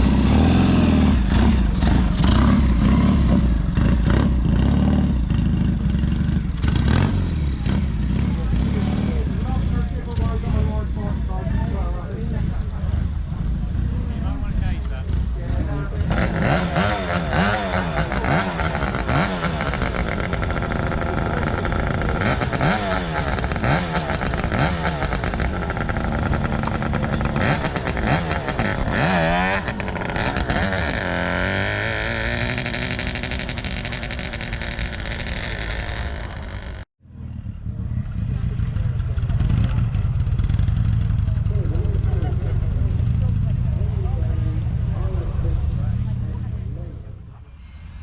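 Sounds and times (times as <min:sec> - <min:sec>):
engine revving: 0:00.0 - 0:36.9.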